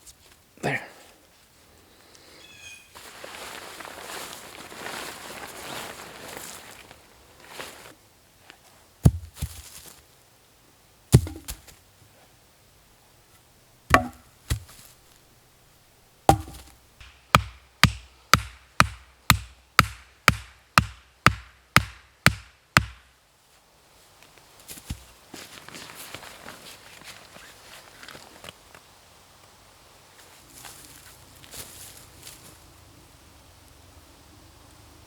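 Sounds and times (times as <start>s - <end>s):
axe striking wood: 9.1s - 9.4s, 11.2s - 11.6s, 13.9s - 14.7s, 16.3s - 23.1s.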